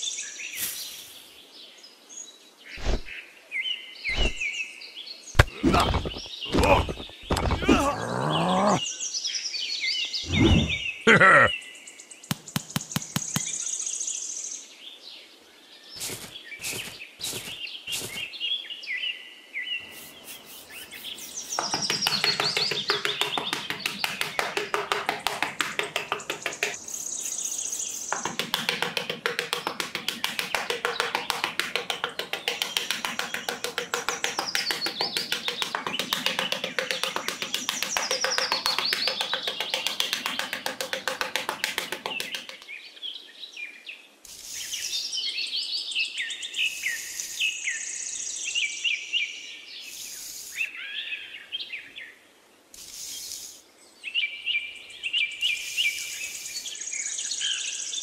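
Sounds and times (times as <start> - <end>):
trowel scraping and patting sand: 0.6 - 1.3, 16.0 - 18.3, 19.8 - 42.6
rock tapping and scraping: 5.4 - 8.8, 12.3 - 13.6, 16.0 - 18.3, 20.1 - 26.8, 28.0 - 42.7
bird chirps: 16.0 - 23.4.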